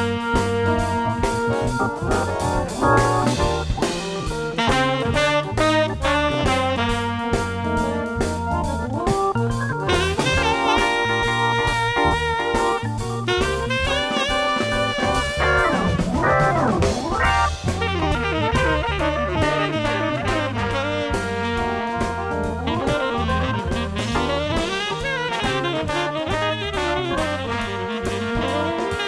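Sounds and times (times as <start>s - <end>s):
jazz music with saxophone and brass: 0.0s - 29.0s.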